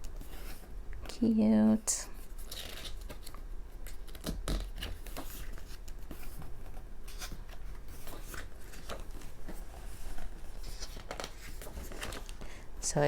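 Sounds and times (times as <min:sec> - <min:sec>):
paper pages rustling: 0:02.2 - 0:12.6.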